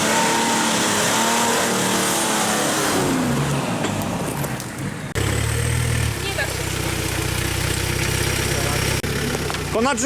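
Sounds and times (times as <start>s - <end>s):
engine revving hard: 0.0s - 3.7s.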